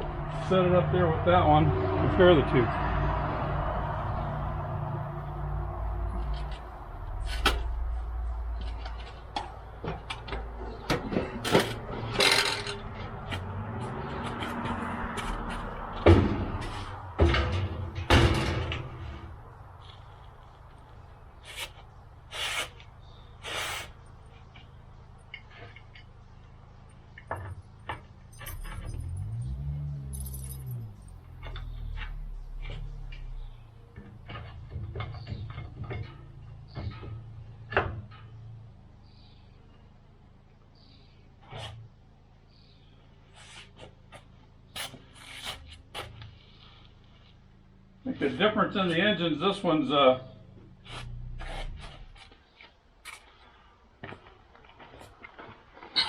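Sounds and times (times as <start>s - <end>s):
low engine rumble: 0.0s - 52.6s
metal knocks and clunks: 6.2s - 19.8s, 27.1s - 38.6s
short scrape: 21.4s - 22.8s, 23.4s - 24.0s, 43.3s - 43.9s, 44.8s - 46.8s, 50.8s - 52.3s.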